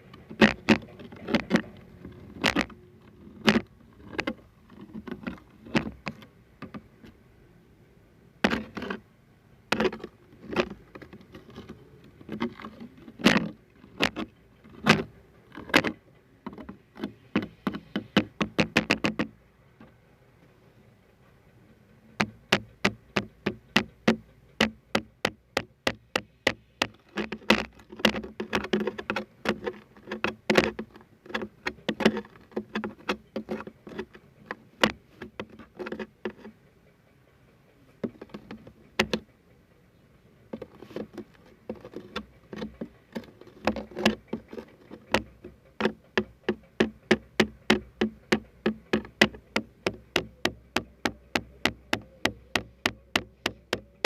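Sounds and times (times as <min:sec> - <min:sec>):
tapping on a hard object: 0:12.3 - 0:19.3, 0:22.2 - 0:36.5, 0:38.0 - 0:39.3, 0:40.5 - 0:54.0.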